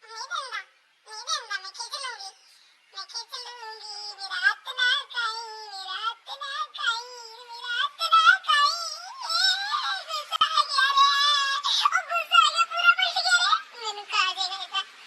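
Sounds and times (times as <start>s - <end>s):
high-pitched synthetic voice singing: 0.0s - 15.0s.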